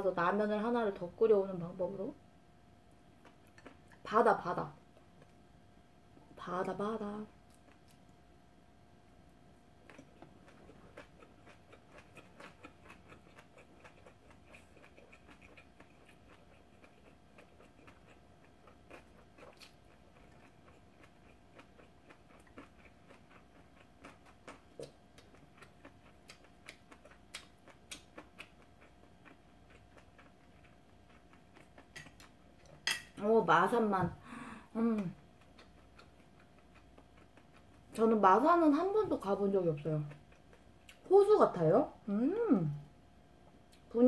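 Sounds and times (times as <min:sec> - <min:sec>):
faint steady hum: 0:00.0 - 0:44.0
chewing with wet mouth clicks: 0:03.2 - 0:04.0, 0:07.4 - 0:08.2, 0:09.8 - 0:33.2, 0:35.0 - 0:38.0, 0:40.0 - 0:41.1.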